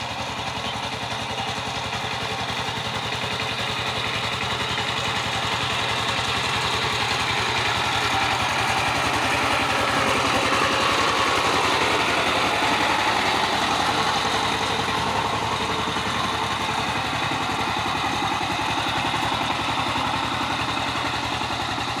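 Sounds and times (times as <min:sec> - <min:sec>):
diesel engine puttering: 0:00.0 - 0:22.0.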